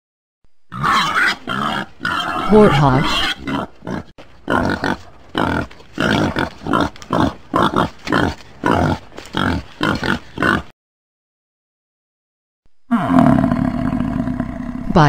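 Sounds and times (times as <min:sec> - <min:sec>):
warthog grunting: 0:00.8 - 0:10.7.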